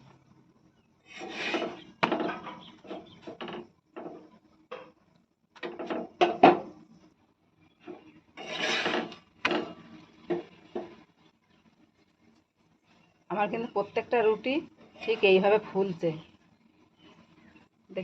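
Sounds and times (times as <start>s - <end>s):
rolling pin rubbing on wooden board: 1.1s - 1.9s, 8.4s - 9.2s.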